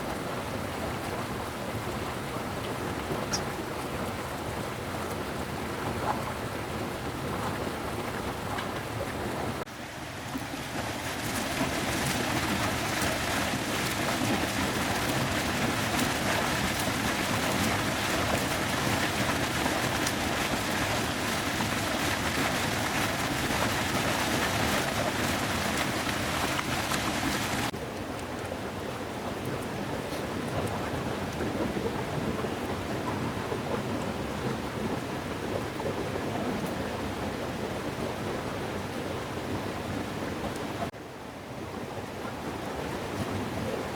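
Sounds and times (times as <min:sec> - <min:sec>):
heavy rain falling: 0:10.4 - 0:27.8.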